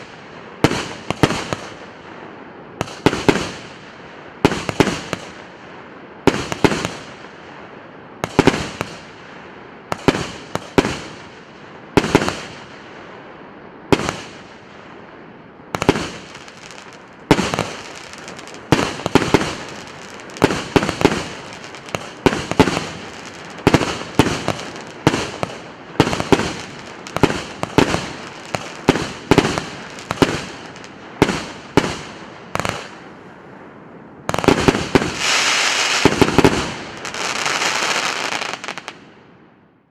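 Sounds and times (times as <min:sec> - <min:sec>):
firework bangs: 0:00.0 - 0:01.9, 0:02.8 - 0:03.8, 0:04.4 - 0:05.4, 0:06.2 - 0:07.2, 0:09.9 - 0:11.4, 0:12.0 - 0:12.7, 0:13.9 - 0:14.7, 0:15.8 - 0:33.1, 0:34.2 - 0:39.0.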